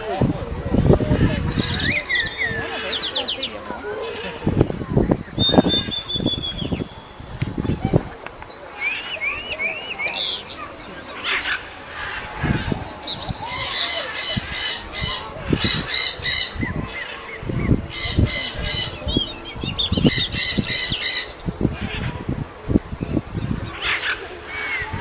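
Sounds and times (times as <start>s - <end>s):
shrill squawking animal calls: 8.8s - 22.2s.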